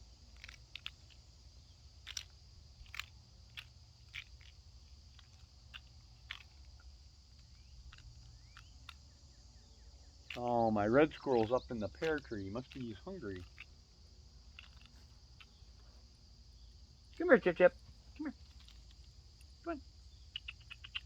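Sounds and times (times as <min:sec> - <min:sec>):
peanut shell cracking: 0:00.0 - 0:09.2, 0:10.2 - 0:10.5, 0:11.1 - 0:15.9, 0:16.8 - 0:21.0.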